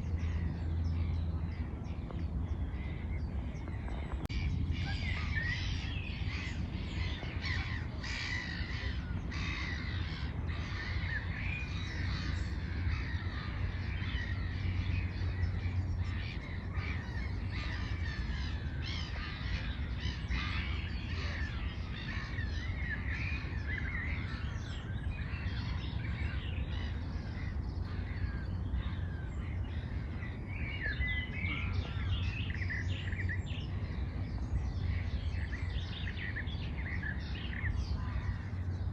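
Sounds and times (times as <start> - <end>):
birds calling and chirping: 0.0 - 38.9
steady low rumble: 0.0 - 38.9
harsh caw-like bird calls: 4.0 - 24.6.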